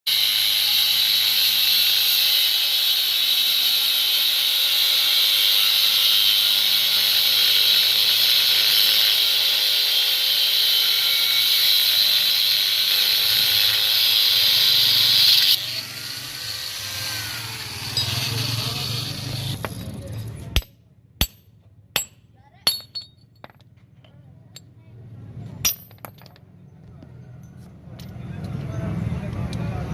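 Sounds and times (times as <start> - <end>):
angle grinder cutting metal: 0.1 - 21.4.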